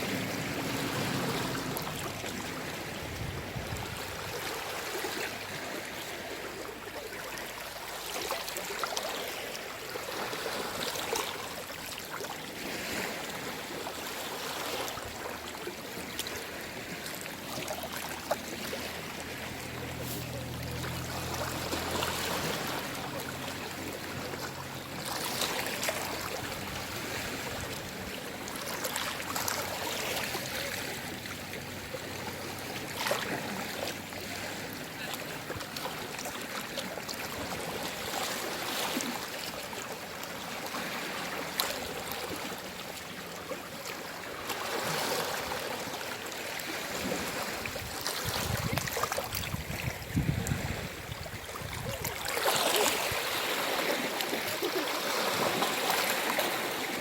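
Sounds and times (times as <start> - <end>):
sea waves lapping at shore: 0.0 - 57.0.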